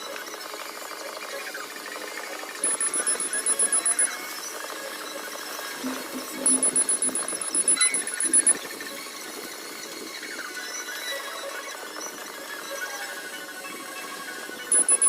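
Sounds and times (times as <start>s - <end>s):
rapid high-pitched electronic beeping: 2.6s - 4.5s, 5.8s - 8.7s, 14.7s - 15.0s.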